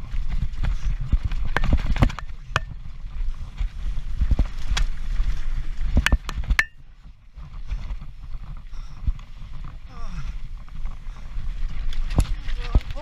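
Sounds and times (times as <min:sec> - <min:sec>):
tyre and wind rumble: 0:00.0 - 0:13.0
bike frame knocks and clicks: 0:01.5 - 0:02.8, 0:06.0 - 0:06.8.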